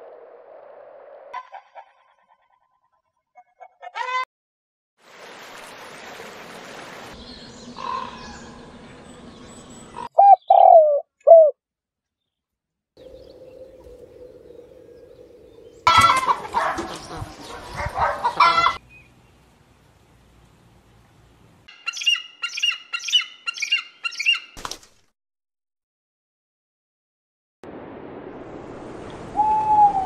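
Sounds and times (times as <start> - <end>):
harsh bird calls: 9.5 - 11.5, 21.7 - 24.6
bird cooing: 10.0 - 11.6, 13.0 - 16.4, 29.4 - 30.0.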